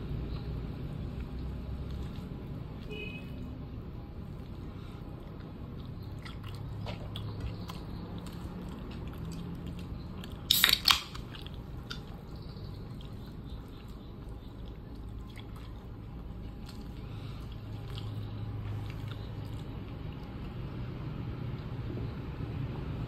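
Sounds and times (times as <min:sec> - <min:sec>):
steady low hum: 0:00.0 - 0:23.0
person chewing food: 0:00.4 - 0:02.9, 0:03.8 - 0:20.8
loud short crackle: 0:10.5 - 0:11.3.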